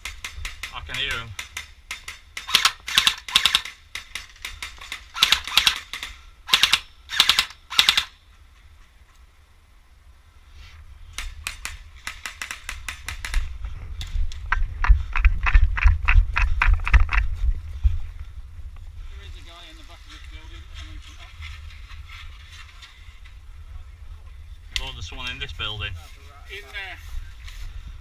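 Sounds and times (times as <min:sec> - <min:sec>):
airsoft guns firing: 0:00.0 - 0:08.2.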